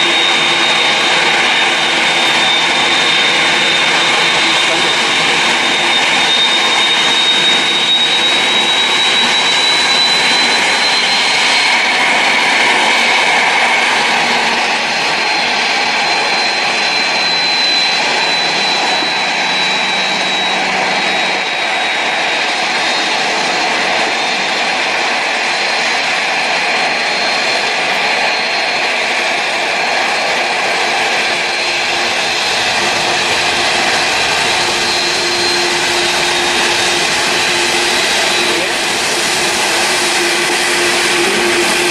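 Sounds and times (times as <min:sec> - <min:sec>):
jet engines running: 0:00.0 - 0:41.9.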